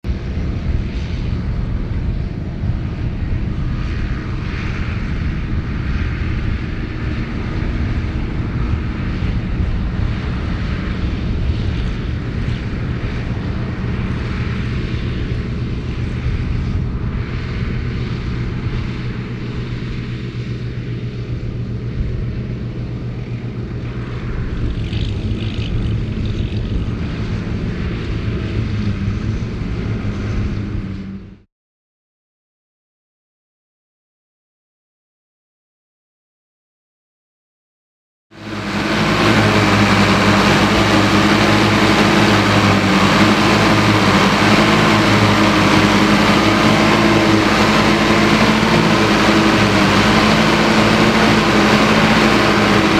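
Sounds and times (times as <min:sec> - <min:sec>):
tractor diesel engine droning: 0:38.4 - 0:52.9.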